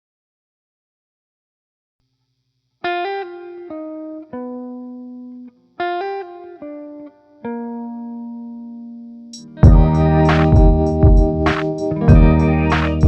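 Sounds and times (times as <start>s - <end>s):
solo guitar picking single notes: 2.9s - 13.0s.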